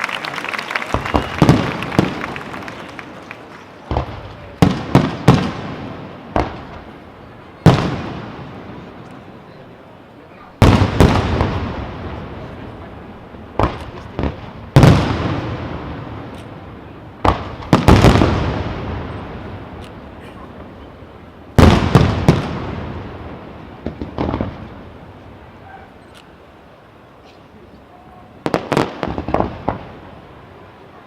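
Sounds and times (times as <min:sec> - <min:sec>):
firework bangs with rolling echo: 0:00.8 - 0:03.2, 0:03.8 - 0:09.4, 0:10.6 - 0:20.8, 0:21.4 - 0:25.6, 0:28.4 - 0:30.6.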